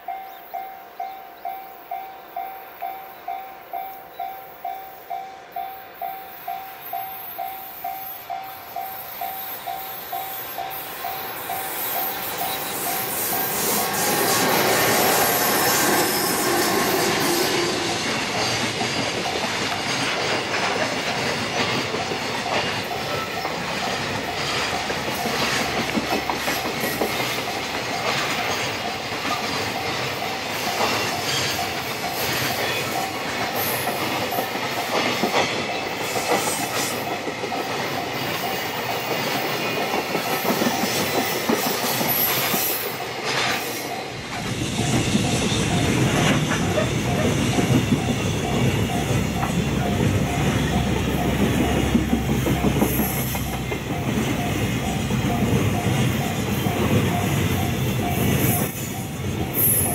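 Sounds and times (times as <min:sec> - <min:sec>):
train wheels clattering on rails: 0:04.2 - 0:59.9.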